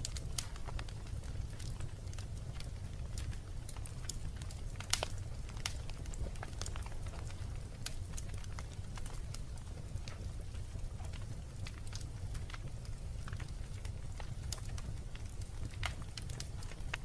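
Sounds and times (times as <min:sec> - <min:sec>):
low rumble of flames: 0:00.0 - 0:17.0
wood fire crackling: 0:00.0 - 0:17.0.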